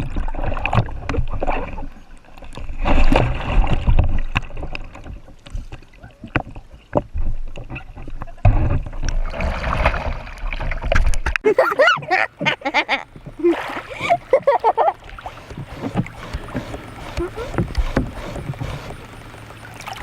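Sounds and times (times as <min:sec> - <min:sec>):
water splashing around kayak: 0:00.0 - 0:20.0
sharp clicks and knocks: 0:15.0 - 0:20.0.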